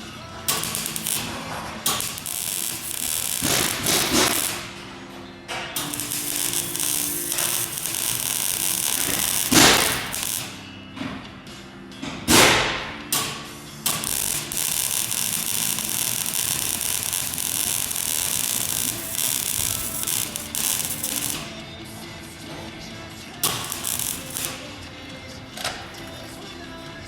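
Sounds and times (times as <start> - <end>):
welding arc crackling: 0.0 - 4.8, 5.5 - 10.6, 13.8 - 21.6, 23.4 - 24.8.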